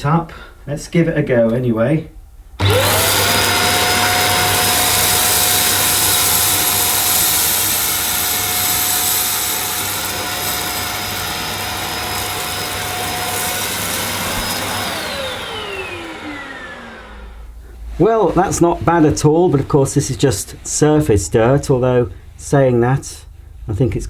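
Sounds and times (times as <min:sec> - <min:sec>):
handheld vacuum cleaner whining: 0:02.6 - 0:17.6
vacuum motor spinning down: 0:02.6 - 0:17.6.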